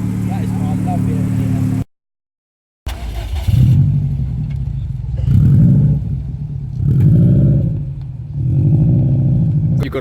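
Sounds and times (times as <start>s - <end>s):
car engine revving: 2.9s - 10.0s.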